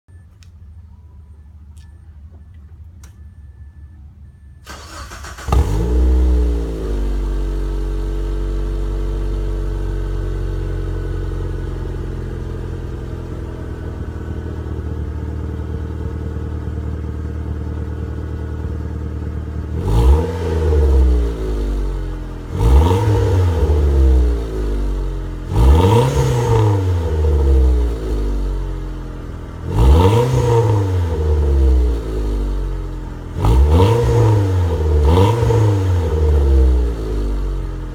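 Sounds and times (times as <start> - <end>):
car engine idling: 0.1 - 37.9
car engine starting: 0.1 - 37.9
car engine revving: 4.6 - 14.9, 19.4 - 37.9.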